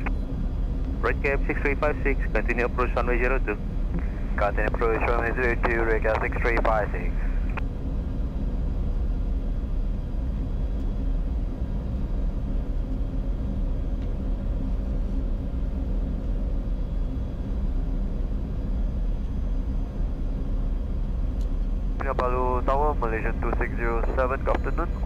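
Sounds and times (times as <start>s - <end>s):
cockpit low rumble: 0.0s - 25.0s
faint steady hum: 0.0s - 25.0s.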